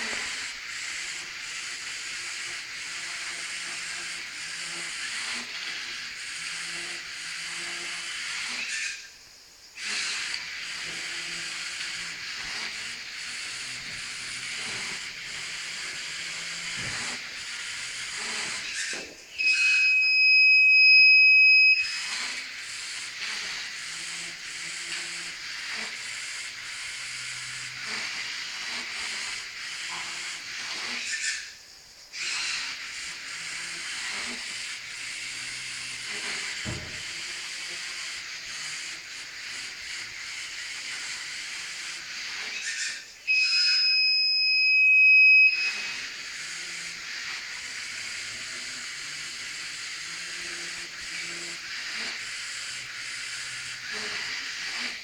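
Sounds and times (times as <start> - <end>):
small motors whirring: 0.0 - 55.0
high buzzer beep: 43.3 - 45.8.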